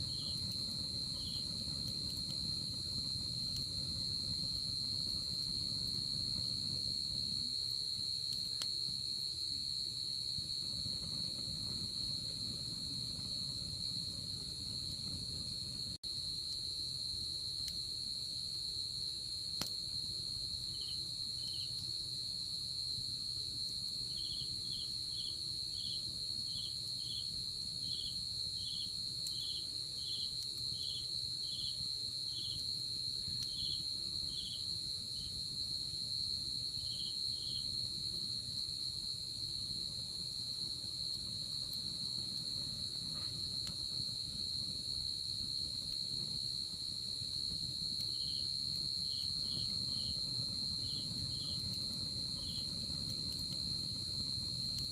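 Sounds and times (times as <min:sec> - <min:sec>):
insect chirping in pulses: 0:00.0 - 0:15.7, 0:41.8 - 0:54.9
wood fire hiss and crackles: 0:00.0 - 0:54.9
insect high-pitched trill: 0:47.2 - 0:53.6.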